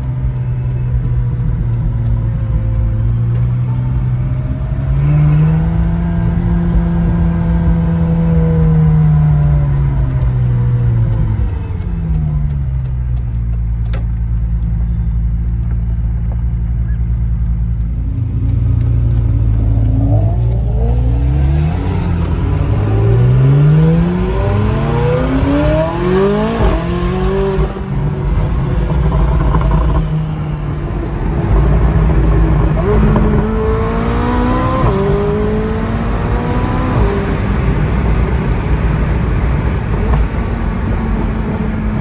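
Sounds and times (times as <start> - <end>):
car engine accelerating: 0.0 - 42.0
gear change: 10.1 - 42.0.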